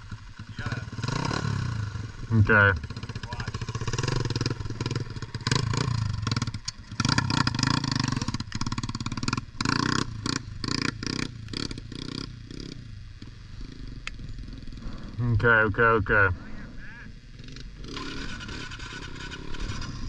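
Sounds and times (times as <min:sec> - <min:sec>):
pit bike engine revving: 0:00.0 - 0:16.2, 0:17.1 - 0:20.0.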